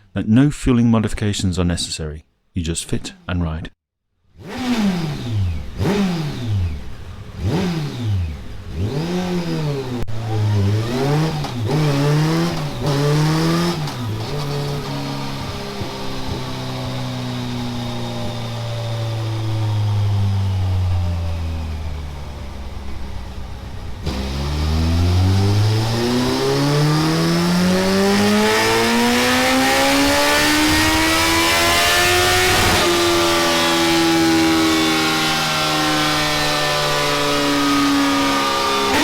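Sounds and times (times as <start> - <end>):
motorcycle engine revving: 4.3 - 39.0.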